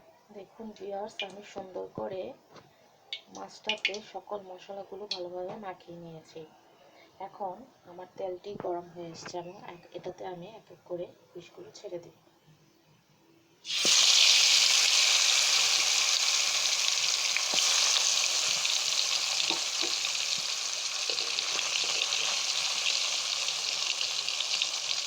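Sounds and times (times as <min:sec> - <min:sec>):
fish sizzling in hot oil: 0:13.6 - 0:25.0
oil popping: 0:13.7 - 0:25.0.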